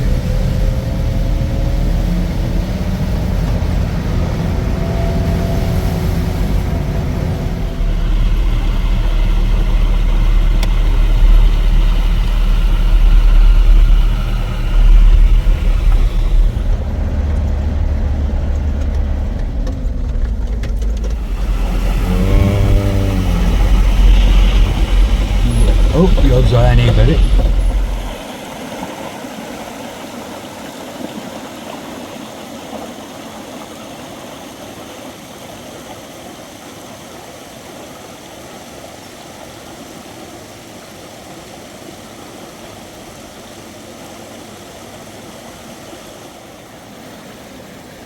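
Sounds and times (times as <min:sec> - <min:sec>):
road noise: 0:00.0 - 0:28.3
vehicle engine rumble: 0:00.0 - 0:28.3.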